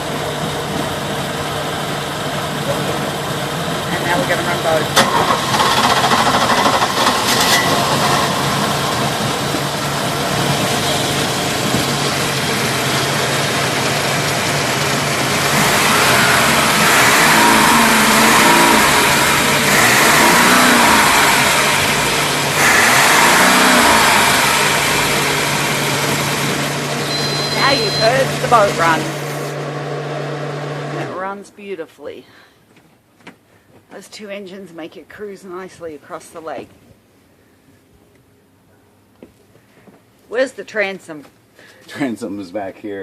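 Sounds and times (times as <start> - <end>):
boat engines idling and revving: 0.0 - 31.4.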